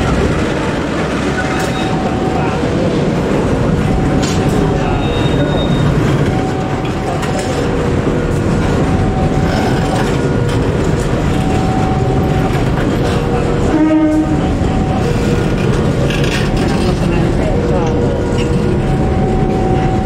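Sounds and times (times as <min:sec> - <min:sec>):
train wheels rumbling on rails: 0:00.0 - 0:20.0
train horn blast: 0:13.6 - 0:15.0.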